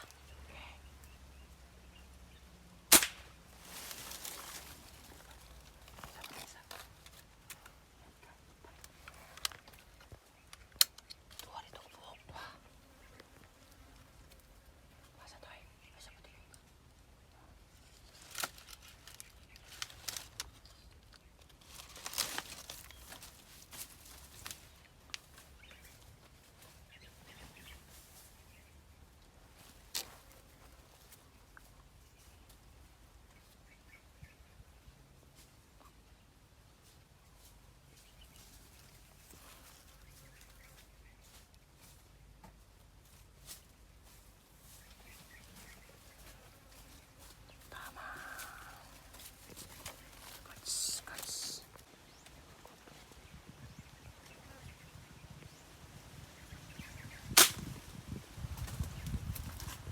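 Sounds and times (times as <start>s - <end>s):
rustling: 2.9s - 7.8s, 17.7s - 28.6s.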